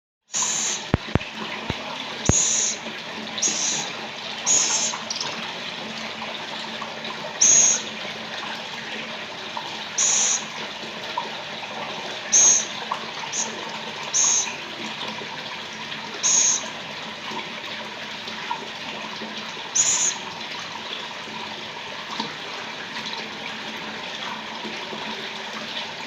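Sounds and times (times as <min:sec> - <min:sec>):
owl raspy hissing calls: 0:00.3 - 0:00.9, 0:02.3 - 0:02.8, 0:03.4 - 0:03.9, 0:04.5 - 0:05.2, 0:07.4 - 0:07.9, 0:10.0 - 0:10.5, 0:12.3 - 0:14.6, 0:16.2 - 0:16.7, 0:19.8 - 0:20.2.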